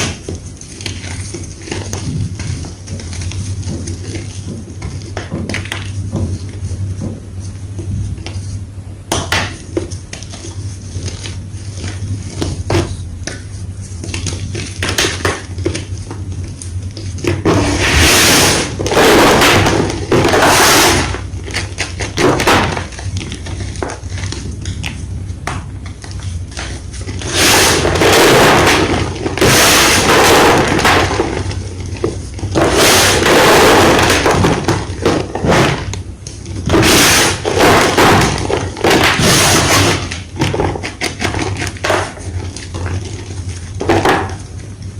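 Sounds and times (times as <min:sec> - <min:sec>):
chalk crunching and crumbling: 0:25.7 - 0:35.5.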